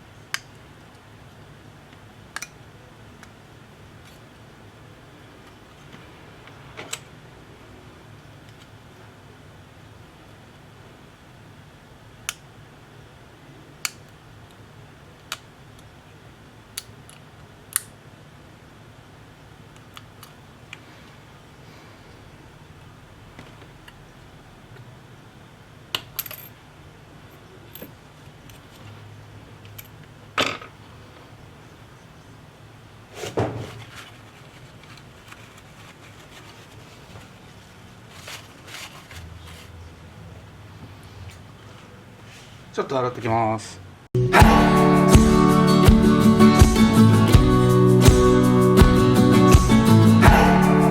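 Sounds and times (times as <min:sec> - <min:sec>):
soft handling scrapes: 0:33.1 - 0:40.0, 0:40.8 - 0:42.7.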